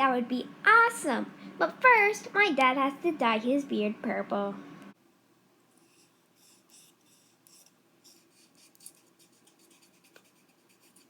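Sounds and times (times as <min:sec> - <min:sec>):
faint scratchy rubbing strokes: 0:05.7 - 0:11.0.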